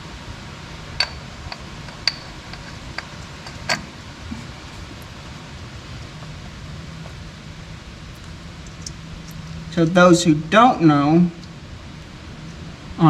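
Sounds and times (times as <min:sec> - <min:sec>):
steady low hum: 0:00.0 - 0:13.0
metallic clinks and taps: 0:01.0 - 0:03.9.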